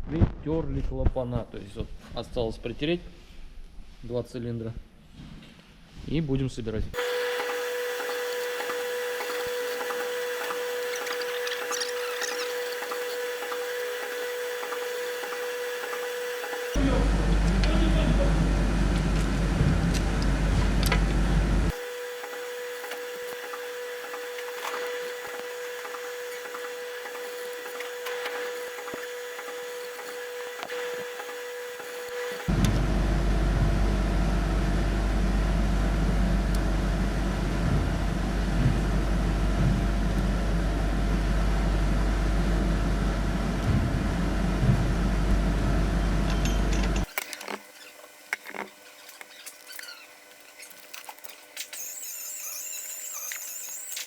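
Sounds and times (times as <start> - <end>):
gritty valve scraping: 7.0 - 16.8, 21.7 - 32.5, 46.9 - 54.0
steady hum: 7.0 - 54.0.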